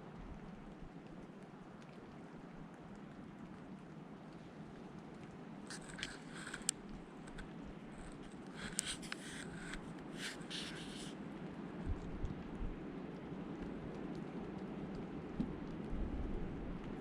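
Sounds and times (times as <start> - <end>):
rain pattering: 0.0 - 17.0
scratching and rustling: 5.7 - 11.2.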